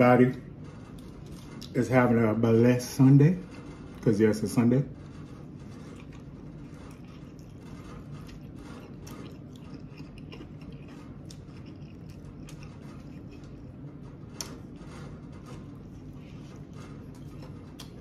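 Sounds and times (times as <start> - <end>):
person chewing with mouth clicks: 5.9 - 13.7.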